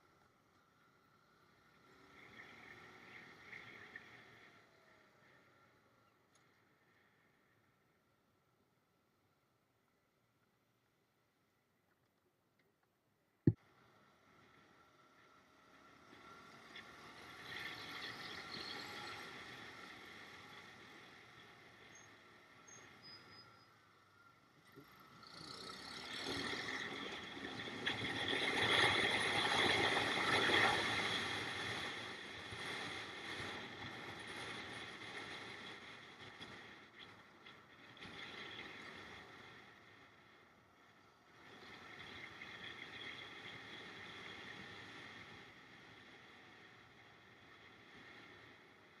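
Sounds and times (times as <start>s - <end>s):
motor vehicle running: 13.6s - 40.6s.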